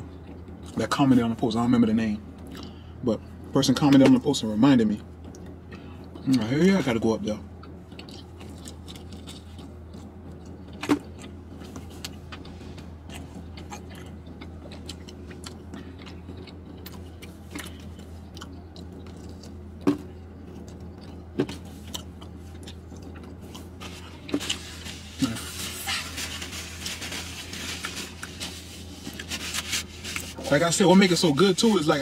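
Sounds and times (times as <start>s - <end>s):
steady low hum: 0.0s - 32.0s
person chewing pizza: 7.5s - 31.8s.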